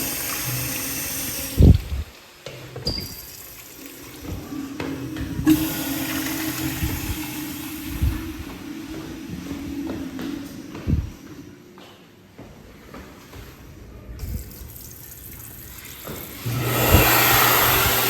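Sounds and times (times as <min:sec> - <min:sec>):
toilet flushing: 0:00.0 - 0:11.8, 0:14.2 - 0:18.0.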